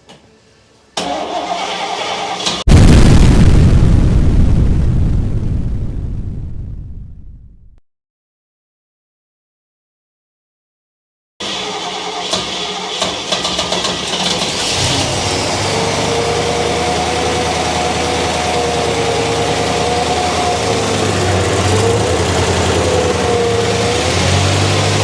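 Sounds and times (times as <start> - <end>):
engine starter cranking: 1.0 - 2.7, 11.4 - 15.2
engine running steadily: 11.4 - 25.0.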